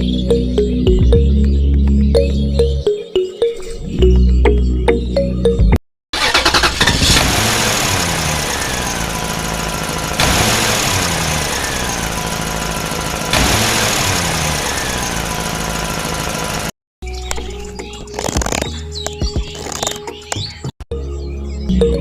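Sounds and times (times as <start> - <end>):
engine revving: 6.2 - 16.8.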